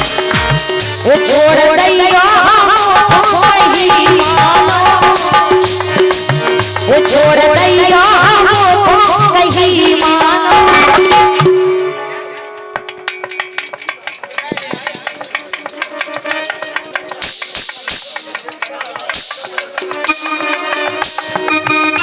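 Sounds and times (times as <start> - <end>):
low drum beat: 0.0 - 1.7
ornamented folk melody: 0.0 - 22.0
rattling jingle percussion: 12.8 - 22.0.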